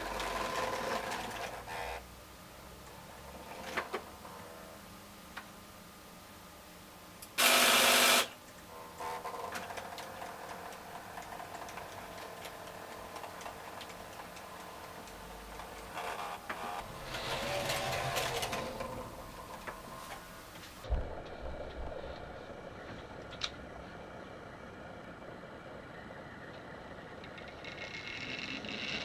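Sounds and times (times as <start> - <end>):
model train motors whirring: 7.3 - 9.8, 10.4 - 20.7.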